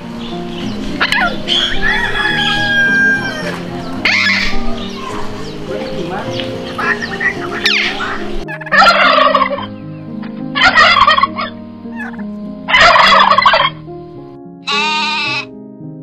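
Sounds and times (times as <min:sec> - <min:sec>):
background music: 0:00.0 - 0:16.0
turkey gobbling: 0:00.6 - 0:13.8, 0:14.7 - 0:15.5
goat bleating: 0:14.6 - 0:15.5.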